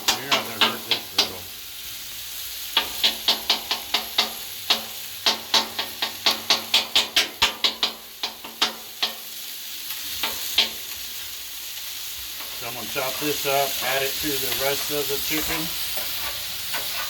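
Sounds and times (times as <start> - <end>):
griddle sizzling: 0.0 - 17.0
metal scraper striking griddle: 2.8 - 9.2, 14.5 - 17.0.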